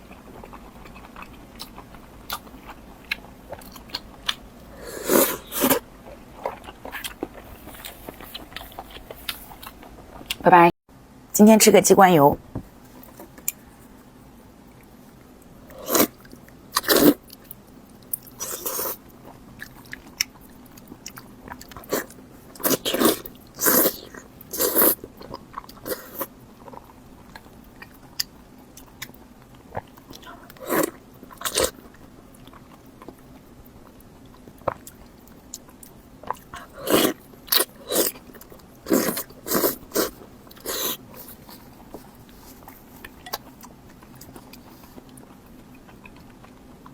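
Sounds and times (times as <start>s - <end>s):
person chewing food: 0.0s - 10.4s, 14.7s - 46.9s.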